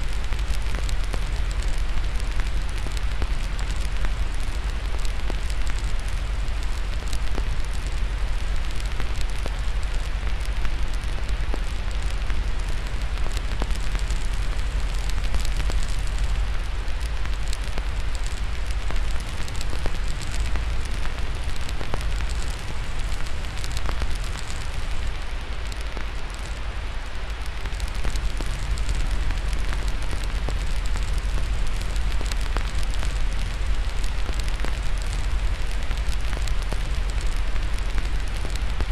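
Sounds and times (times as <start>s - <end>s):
fire crackling: 0.0s - 38.9s
white noise hiss: 0.0s - 38.9s.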